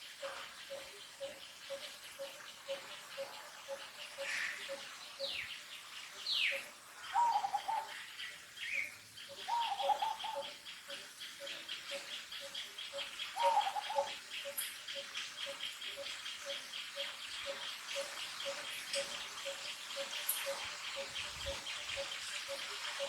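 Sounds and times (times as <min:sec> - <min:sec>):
rhythmic bird chirping: 0:00.0 - 0:23.0
bird warbling call: 0:06.4 - 0:23.0.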